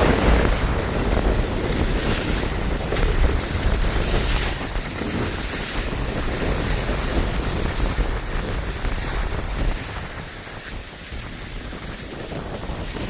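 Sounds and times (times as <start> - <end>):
skis sliding over snow: 0.0 - 13.0
wind buffeting microphone: 0.0 - 13.0.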